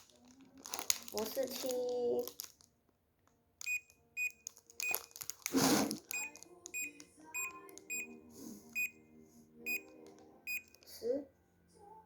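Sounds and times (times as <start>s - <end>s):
short electronic beeps: 6.1s - 8.1s.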